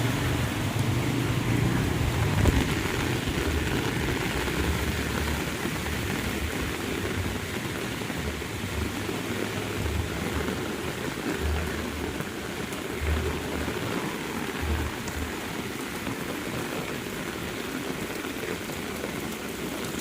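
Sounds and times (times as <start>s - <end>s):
low rumble: 0.0s - 5.2s
heavy rain falling: 0.0s - 20.0s.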